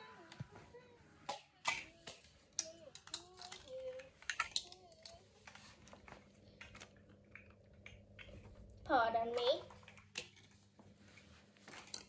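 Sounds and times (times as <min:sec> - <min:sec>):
plastic bricks clicking: 0:01.3 - 0:05.2.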